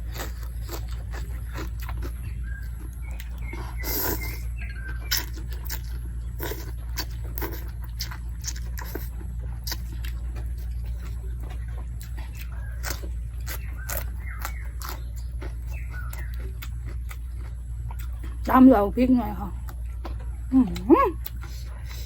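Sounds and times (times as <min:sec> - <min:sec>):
person chewing and smacking: 0:00.0 - 0:18.5, 0:19.5 - 0:22.0
steady low hum: 0:00.0 - 0:22.0.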